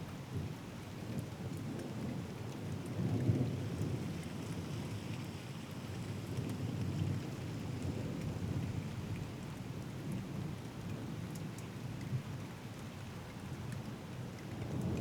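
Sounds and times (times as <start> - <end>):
steady rain falling: 0.1 - 15.0
low rumble of thunder: 14.5 - 15.0.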